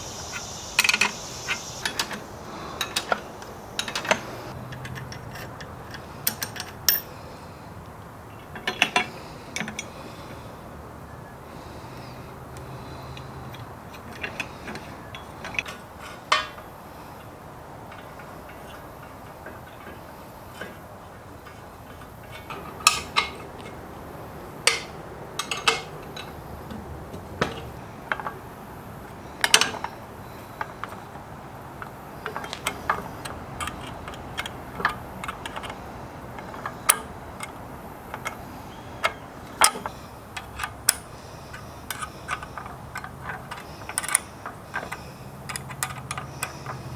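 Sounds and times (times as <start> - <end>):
low background noise: 0.0 - 46.9
metal tools clicking and clinking: 0.1 - 7.1, 21.4 - 23.8, 24.6 - 26.4, 29.4 - 30.0, 30.6 - 46.9.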